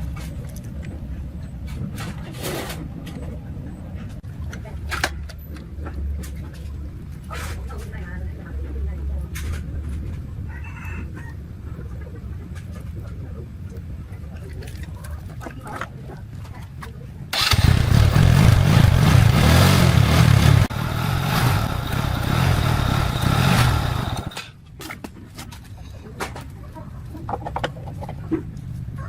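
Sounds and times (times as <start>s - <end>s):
small motorbike engine running: 17.4s - 24.4s.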